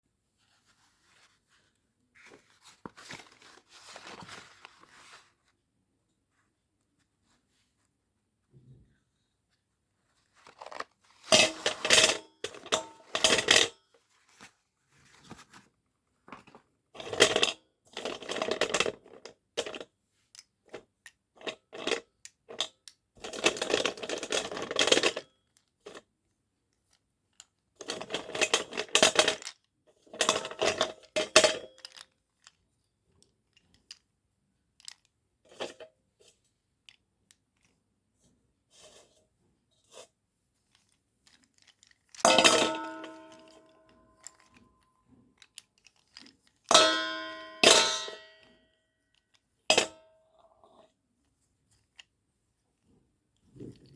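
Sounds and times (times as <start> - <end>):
slate pencils clattering: 10.4 - 13.7, 40.8 - 44.7.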